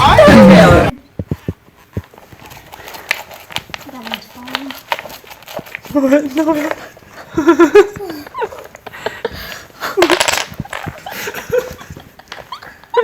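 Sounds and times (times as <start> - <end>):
person laughing: 7.2 - 13.0.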